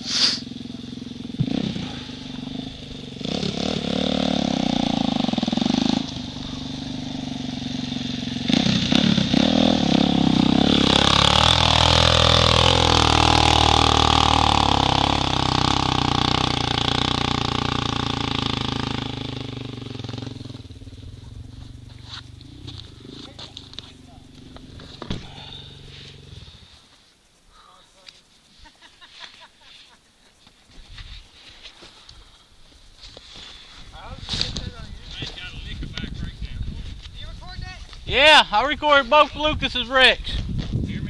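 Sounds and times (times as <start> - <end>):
dirt bike engine revving: 0.0 - 26.8.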